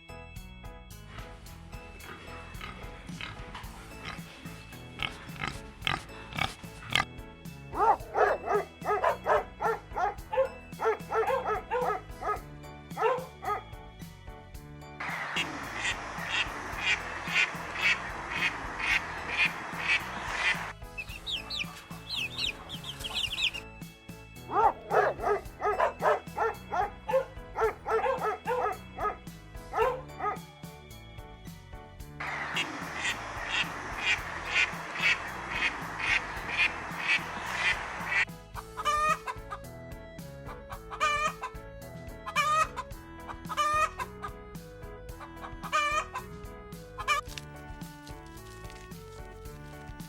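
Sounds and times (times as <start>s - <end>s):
background music with beat: 0.0s - 50.0s
chicken calling: 7.8s - 12.4s, 15.1s - 23.6s, 24.5s - 30.4s, 32.3s - 39.6s, 40.5s - 41.6s, 42.2s - 44.4s, 45.1s - 46.4s, 47.0s - 47.3s
dog barking: 7.8s - 12.4s, 13.0s - 13.6s, 24.5s - 30.4s.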